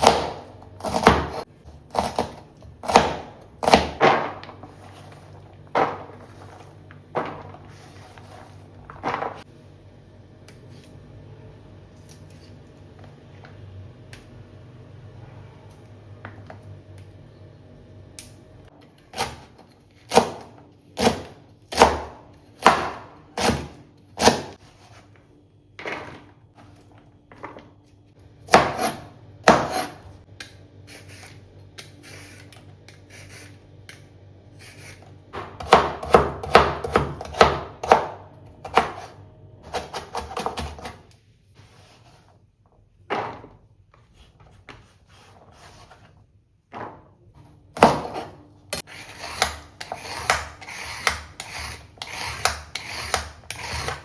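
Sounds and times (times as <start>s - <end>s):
clatter of kitchen items: 4.0s - 9.5s
kitchen items knocking: 5.7s - 7.8s, 8.8s - 9.5s.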